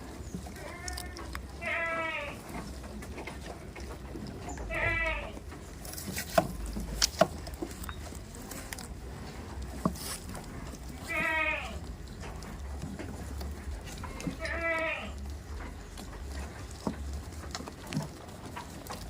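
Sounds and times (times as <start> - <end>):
goat bleating: 0.6 - 2.6, 4.6 - 5.5, 10.9 - 11.9, 14.0 - 15.3.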